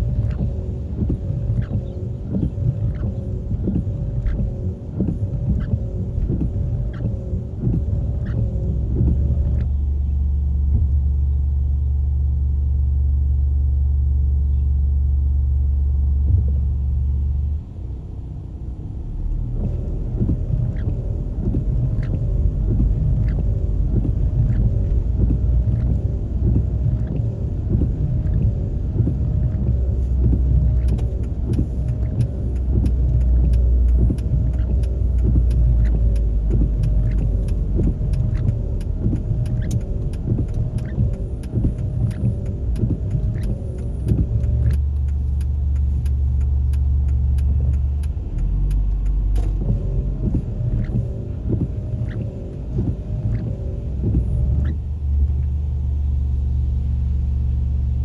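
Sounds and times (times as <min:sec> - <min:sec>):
vehicle engine and tyre rumble: 0:00.0 - 0:58.0
small sharp ticks: 0:19.6 - 0:55.5.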